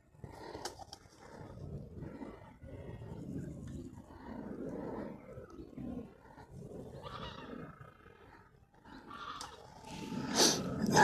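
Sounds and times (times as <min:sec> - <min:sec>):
wind buffeting microphone: 0:00.0 - 0:11.0
soft breathy hisses: 0:09.8 - 0:11.0.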